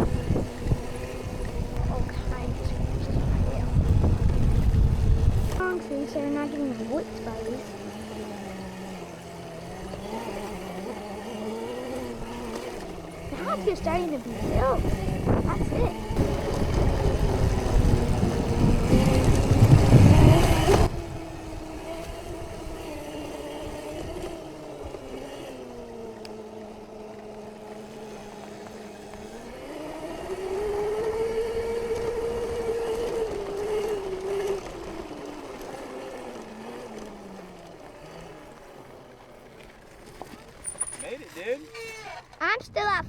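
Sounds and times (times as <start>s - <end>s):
wind rumble on microphone: 0.0s - 5.7s, 12.0s - 25.0s, 30.1s - 35.2s
electric dirt bike motor whining: 0.0s - 42.4s.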